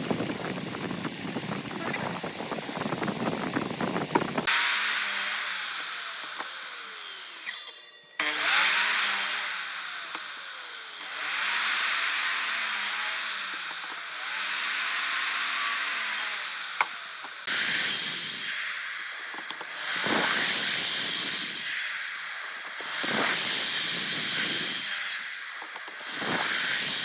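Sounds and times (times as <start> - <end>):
power tool cutting wood: 0.7 - 27.0.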